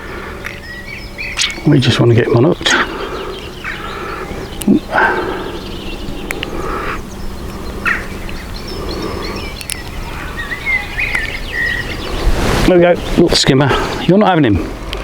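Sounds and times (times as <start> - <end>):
steady background noise: 0.0 - 15.0
high wavering animal calls: 0.1 - 13.2.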